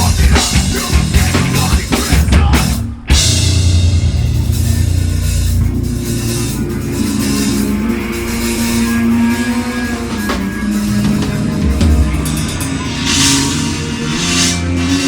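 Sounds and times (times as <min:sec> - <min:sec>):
heavy metal band playing: 0:00.0 - 0:15.0
cymbal washes: 0:03.2 - 0:15.0.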